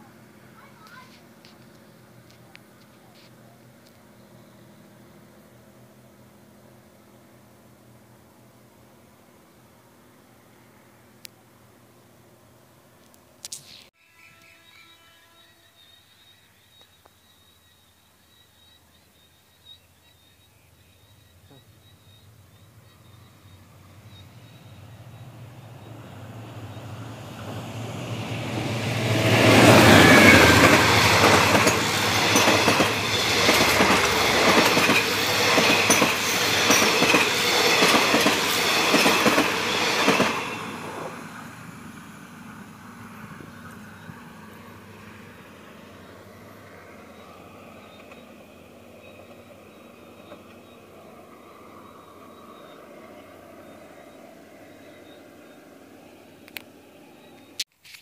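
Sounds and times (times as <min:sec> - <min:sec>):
locomotive engine hum: 0:21.3 - 0:57.6
clickety-clack of train wheels: 0:28.3 - 0:41.2, 0:47.2 - 0:50.8.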